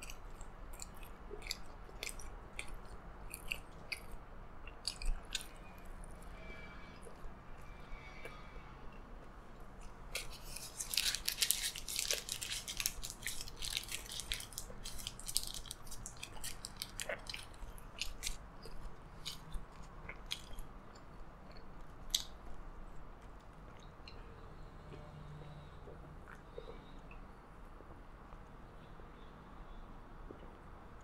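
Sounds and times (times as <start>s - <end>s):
close-up chewing with mouth clicks: 0.0s - 5.6s, 10.1s - 24.2s.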